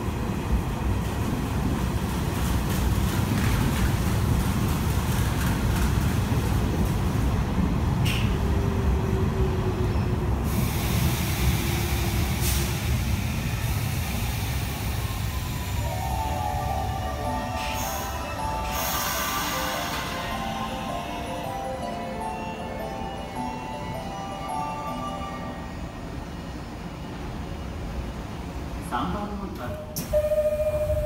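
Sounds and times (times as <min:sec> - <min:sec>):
train wheels rumbling on rail: 0:00.0 - 0:21.5.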